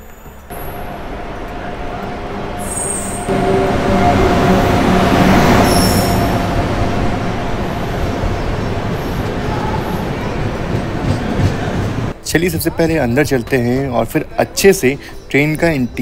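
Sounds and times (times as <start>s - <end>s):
electric locomotive passing: 0.0s - 13.4s
train rolling past: 0.0s - 16.0s
high wheel squeals: 0.5s - 10.3s.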